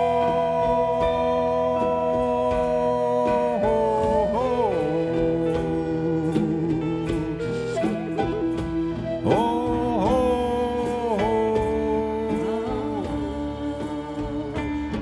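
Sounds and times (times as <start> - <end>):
light steady percussion: 0.0 - 15.0
live band music: 0.0 - 15.0.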